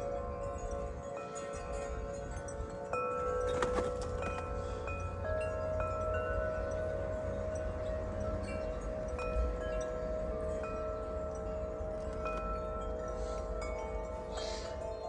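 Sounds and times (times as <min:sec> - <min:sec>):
wind chimes ringing: 0:00.0 - 0:15.0
wind rumble on microphone: 0:00.0 - 0:15.0.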